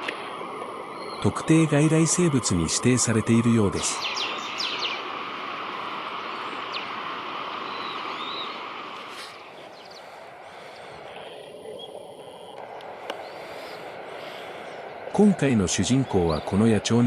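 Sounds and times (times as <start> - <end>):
outdoor background noise: 0.0 - 17.0
faint bird chirps: 0.9 - 1.5, 3.8 - 5.0, 7.6 - 16.7.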